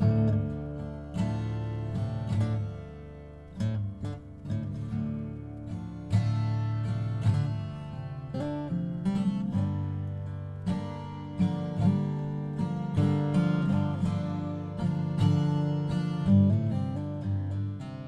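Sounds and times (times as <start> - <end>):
acoustic guitar strumming and picking: 0.0 - 18.0.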